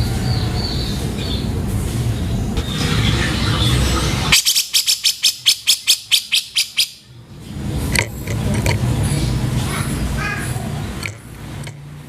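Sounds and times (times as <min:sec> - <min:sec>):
bird rasping call: 0:02.6 - 0:07.1
bird sharp fast notes: 0:02.6 - 0:07.1.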